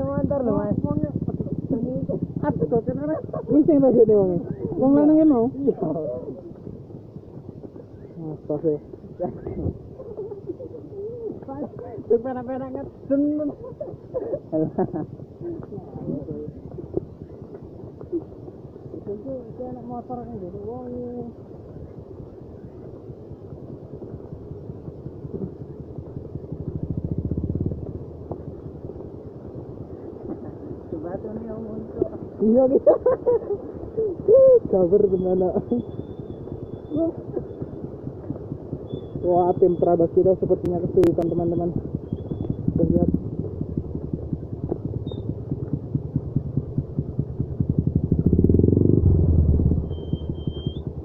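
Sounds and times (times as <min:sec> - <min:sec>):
motorcycle engine revving: 0:00.0 - 0:06.2, 0:24.2 - 0:32.7, 0:33.9 - 0:51.0.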